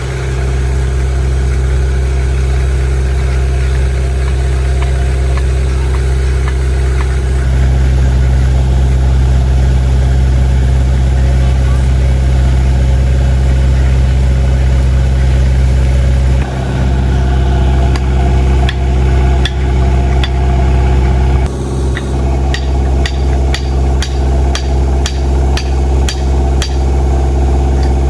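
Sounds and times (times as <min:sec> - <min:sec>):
engine running: 0:00.0 - 0:28.0
sharp knocks: 0:21.9 - 0:27.0.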